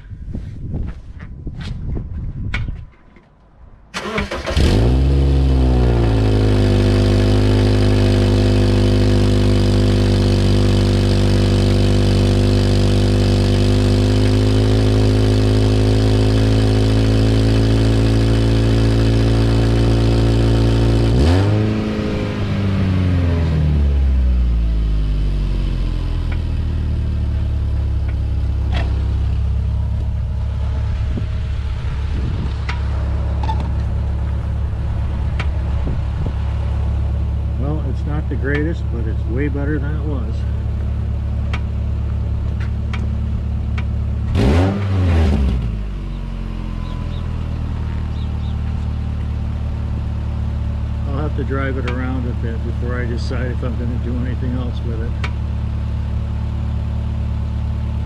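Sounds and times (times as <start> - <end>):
car engine starter cranking: 3.9 - 5.1
car engine idling: 3.9 - 21.2, 22.1 - 44.4, 45.7 - 58.0
engine revving: 4.0 - 56.2.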